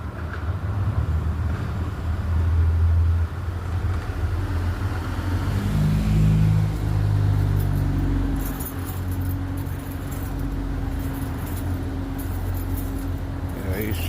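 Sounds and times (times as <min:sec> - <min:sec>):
car engine rumbling: 0:04.8 - 0:14.0.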